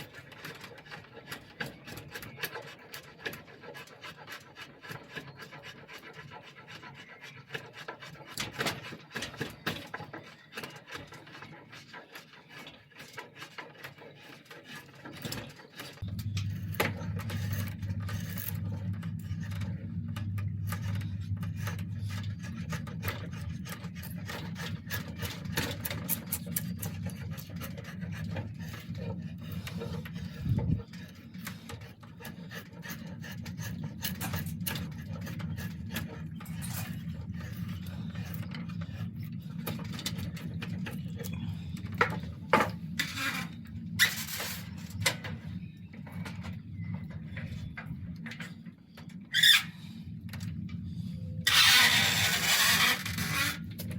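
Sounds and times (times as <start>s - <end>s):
hand tool rasping wood: 0.0s - 16.2s, 20.7s - 44.7s
steady low hum: 15.2s - 53.9s.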